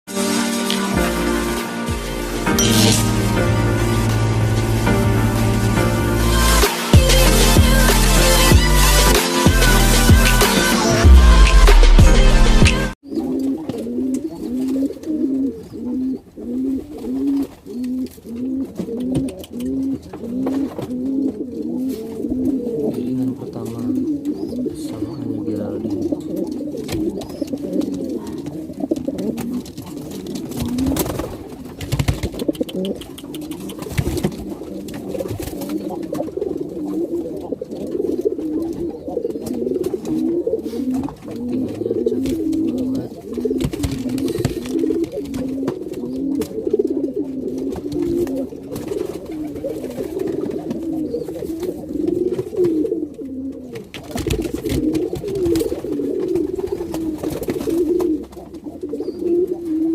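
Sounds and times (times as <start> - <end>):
pigeons cooing: 13.0 - 59.9.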